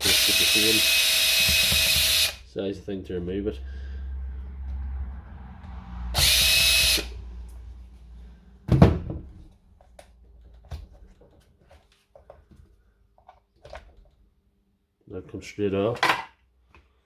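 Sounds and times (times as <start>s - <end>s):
powered screwdriver whirring: 0.0s - 2.4s, 6.1s - 7.1s
loud knock: 8.7s - 9.4s.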